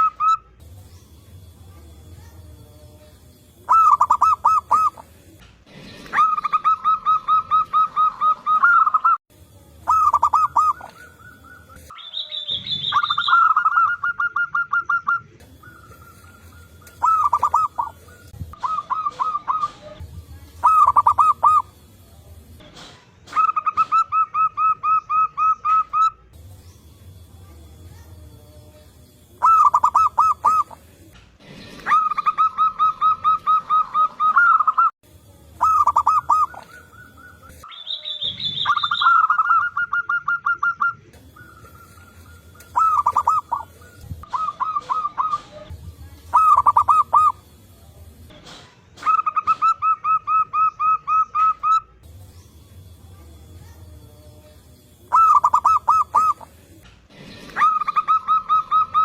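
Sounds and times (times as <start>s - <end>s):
doves cooing: 3.4s - 9.2s, 9.8s - 21.8s, 29.4s - 34.9s, 35.6s - 37.7s, 38.3s - 47.5s, 49.0s - 51.8s, 55.1s - 59.0s
higher bird call: 9.9s - 19.9s, 35.6s - 45.7s, 55.1s - 56.5s.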